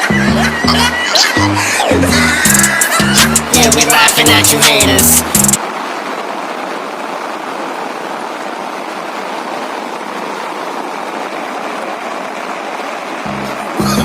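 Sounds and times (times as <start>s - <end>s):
music: 0.0s - 5.6s, 13.3s - 14.0s
heavy rain hissing: 0.0s - 14.0s.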